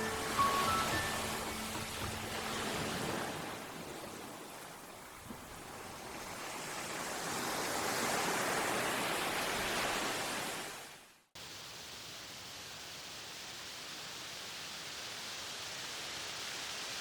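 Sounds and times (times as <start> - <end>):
sea surf washing in: 0.0 - 10.9.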